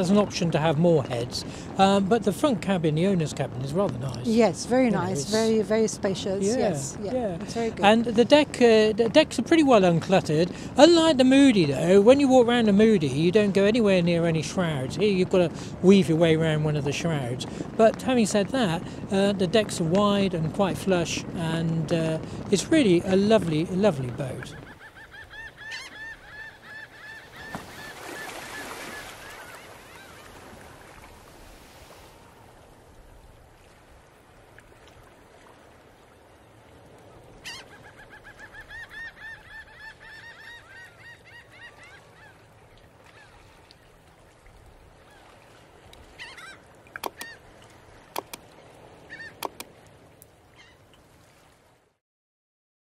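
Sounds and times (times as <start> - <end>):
faint background hiss: 0.0 - 12.8
birds calling: 22.3 - 30.4, 37.4 - 43.4, 46.1 - 48.4, 49.0 - 49.8
sharp clicks: 47.0 - 47.3, 48.2 - 48.4, 49.4 - 49.7.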